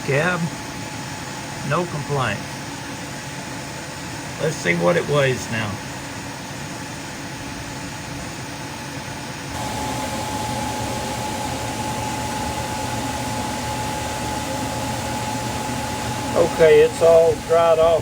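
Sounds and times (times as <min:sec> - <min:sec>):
steady whine: 0:07.8 - 0:18.0
machine humming: 0:09.5 - 0:18.0.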